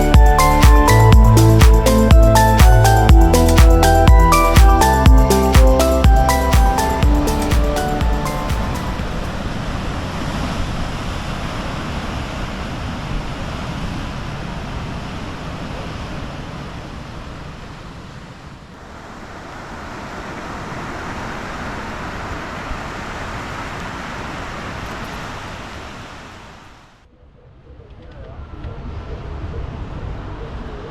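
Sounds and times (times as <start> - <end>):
steady outdoor rushing noise: 0.0 - 13.4.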